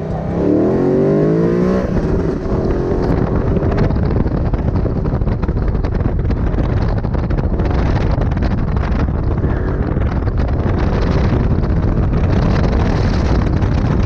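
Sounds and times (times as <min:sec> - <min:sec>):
car engine accelerating hard: 0:00.0 - 0:06.0
wind buffeting on microphone: 0:00.0 - 0:14.0.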